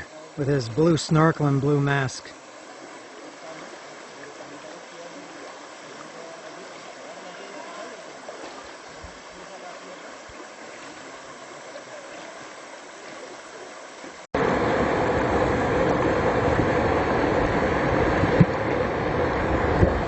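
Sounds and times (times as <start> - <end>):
river water flowing: 0.0 - 20.0
loud rushing with low rumble: 14.4 - 20.0.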